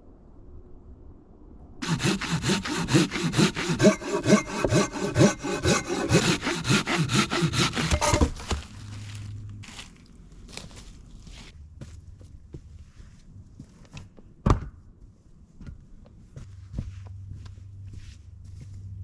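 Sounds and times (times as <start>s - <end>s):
hand saw cutting wood: 1.8s - 8.6s.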